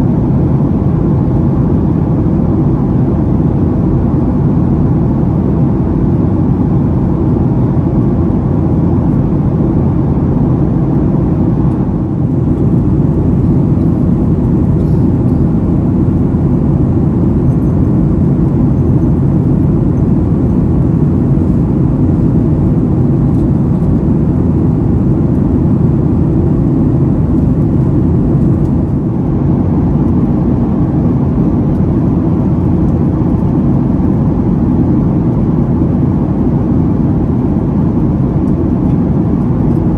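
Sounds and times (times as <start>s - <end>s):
airplane cabin engine drone: 0.0s - 39.9s.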